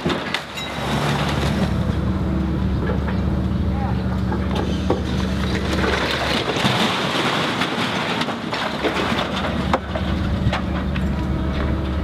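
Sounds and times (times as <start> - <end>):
crunching and clattering debris: 0.0 - 2.0, 4.2 - 12.0
heavy machine engine running: 0.0 - 12.0.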